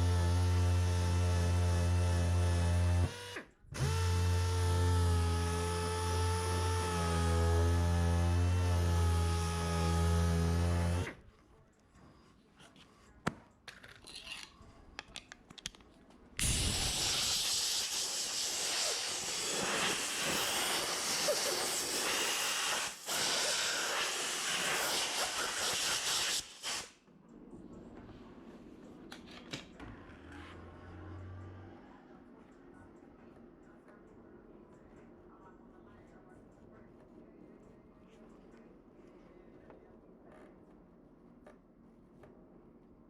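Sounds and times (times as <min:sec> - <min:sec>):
pressurized spray hissing: 0:16.4 - 0:26.9.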